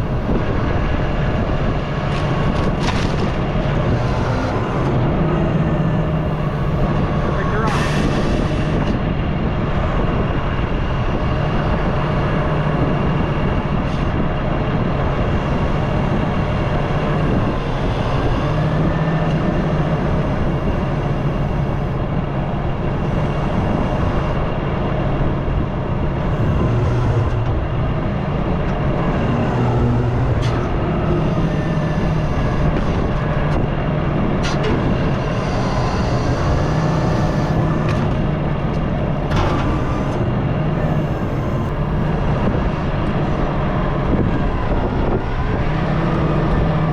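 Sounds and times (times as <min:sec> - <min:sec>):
diesel engine running: 0:00.0 - 0:46.9
faint hydraulic whine: 0:39.2 - 0:42.6.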